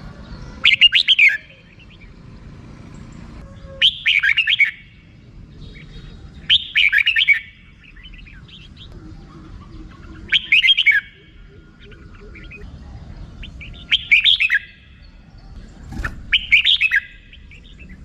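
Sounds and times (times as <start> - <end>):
bird chattering rapid notes: 15.8 - 17.3.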